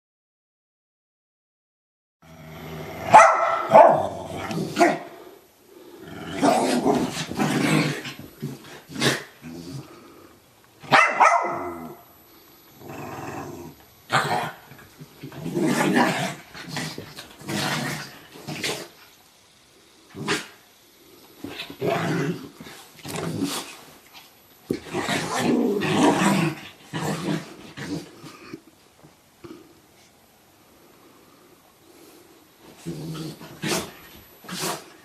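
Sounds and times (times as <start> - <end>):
dogs barking: 3.1 - 4.1, 10.9 - 12.0
dogs growling: 3.8 - 10.4, 12.8 - 19.0, 21.4 - 23.9, 24.7 - 28.6, 32.8 - 35.0.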